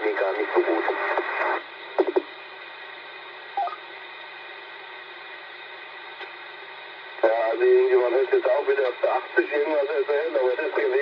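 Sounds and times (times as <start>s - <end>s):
radio static hiss: 0.0s - 11.0s
short radio chirp: 3.6s - 3.8s.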